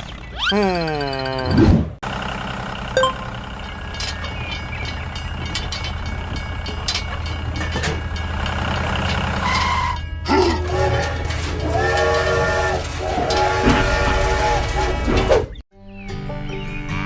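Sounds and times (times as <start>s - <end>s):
heavy machinery engine running: 2.0s - 15.3s
short beep: 3.0s - 3.4s
clicks and clanks: 3.6s - 13.9s.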